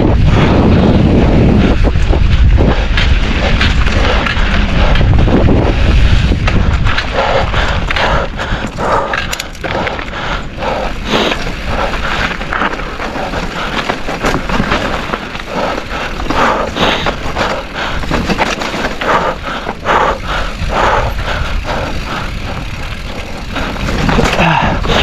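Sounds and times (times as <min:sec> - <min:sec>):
bike rattling over bumps: 0:00.0 - 0:25.0
tyres crunching over dirt and stones: 0:08.6 - 0:19.9, 0:22.0 - 0:25.0.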